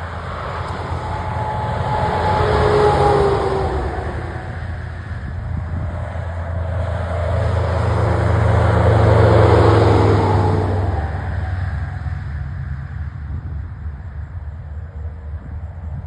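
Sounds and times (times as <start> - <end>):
trucks passing on a hill: 0.0 - 16.0.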